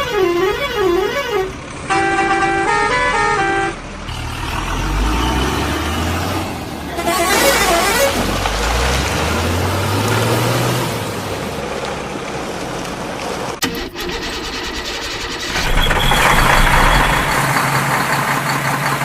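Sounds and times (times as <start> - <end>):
short horn toot: 0.0 - 3.8
heavy vehicle engine revving: 0.0 - 13.6, 14.9 - 19.0
gritty rattling noise: 14.2 - 19.0.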